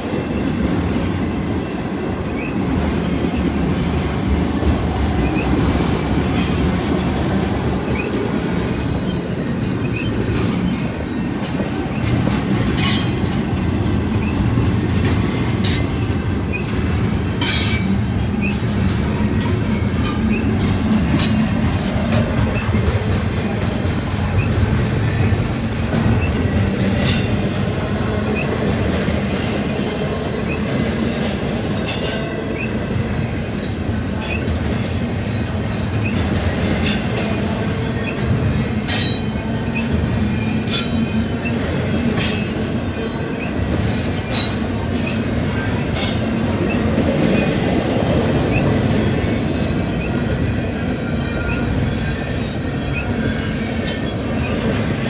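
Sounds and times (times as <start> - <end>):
steel wheels rumbling on rail: 0.0 - 55.0
high-pitched wheel squeal: 9.0 - 12.1.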